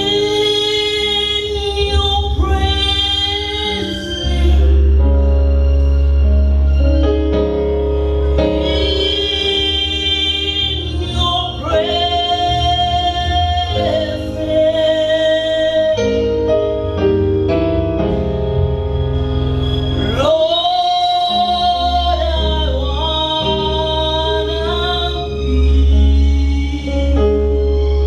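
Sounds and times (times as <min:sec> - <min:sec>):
deep bass accompaniment: 0:00.0 - 0:28.0
singers holding long notes: 0:08.0 - 0:16.3.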